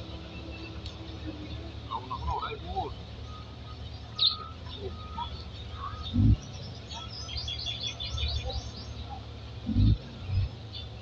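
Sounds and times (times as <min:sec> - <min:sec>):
bird chirping: 0:00.0 - 0:11.0
dull low thumps: 0:06.1 - 0:06.5, 0:09.7 - 0:10.6.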